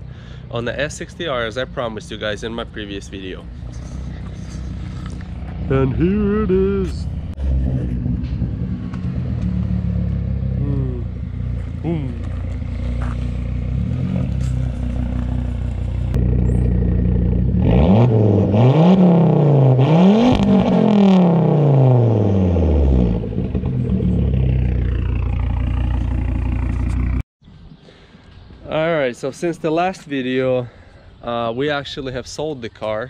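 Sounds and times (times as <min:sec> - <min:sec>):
car engine revving and idling: 0:03.4 - 0:27.2.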